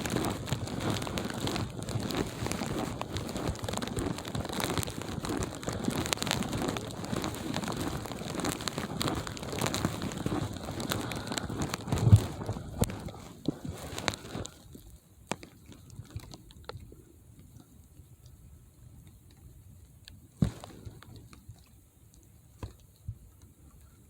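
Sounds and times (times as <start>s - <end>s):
footsteps crunching through snow: 0.0s - 14.6s.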